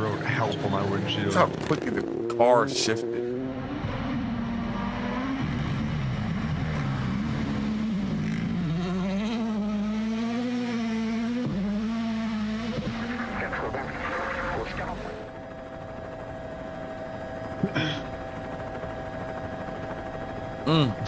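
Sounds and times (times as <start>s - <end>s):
rally car engine revving: 3.1s - 13.3s.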